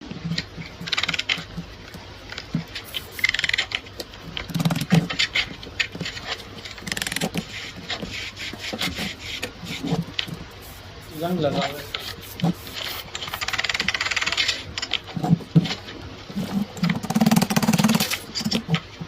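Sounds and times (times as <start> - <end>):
hand tools scraping metal: 6.0 - 13.4
sharp tool clicks: 6.9 - 7.4, 17.0 - 18.2.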